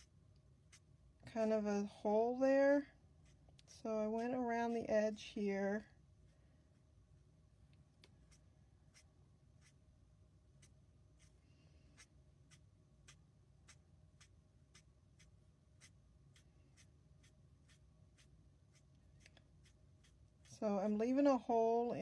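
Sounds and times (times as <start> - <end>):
marker strokes on cardstock: 0.0 - 1.7, 2.4 - 4.9, 8.1 - 9.8, 10.6 - 22.0.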